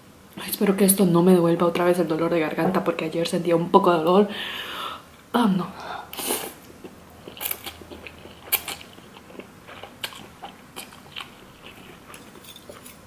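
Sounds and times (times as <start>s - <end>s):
person chewing noodles: 6.2s - 13.0s.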